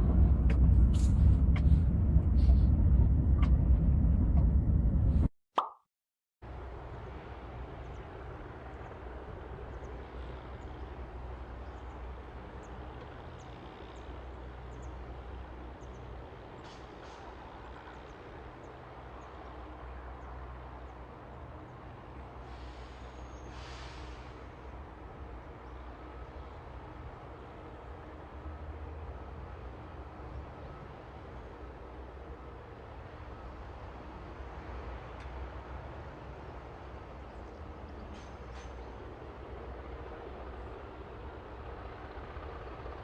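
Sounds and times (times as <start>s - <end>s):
train rumbling: 0.0s - 5.3s.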